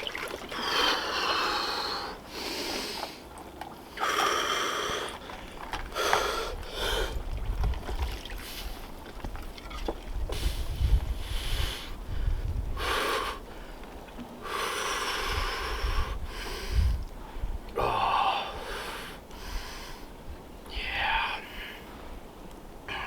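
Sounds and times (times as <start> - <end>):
man breathing hard: 5.9 - 7.2, 14.4 - 20.1.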